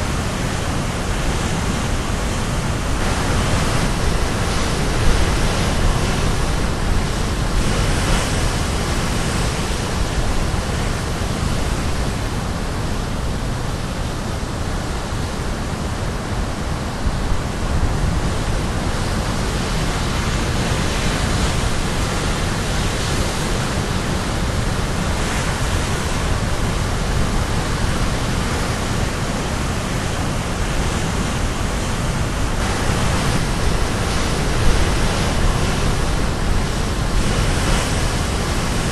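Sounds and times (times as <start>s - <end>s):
wind on microphone: 0.0s - 38.9s
waves breaking on rocks: 17.8s - 38.9s.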